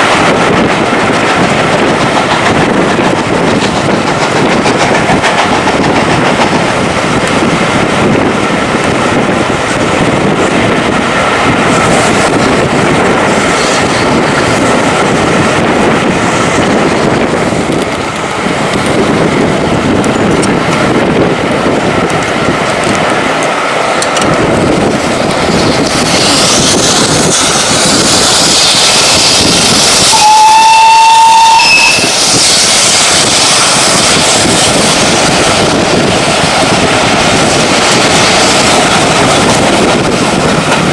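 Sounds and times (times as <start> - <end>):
steam train wheels rattling on track: 0.0 - 40.9
steam hissing: 24.9 - 40.4
steam whistle: 30.1 - 32.2.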